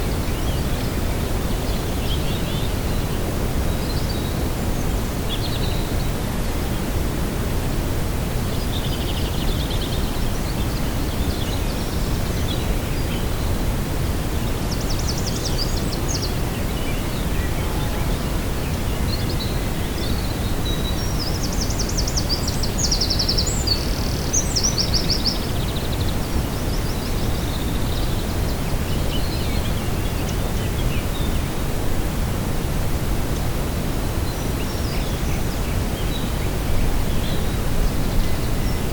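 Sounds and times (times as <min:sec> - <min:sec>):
wind on microphone: 0:00.0 - 0:38.9
small birds trilling: 0:08.4 - 0:31.7.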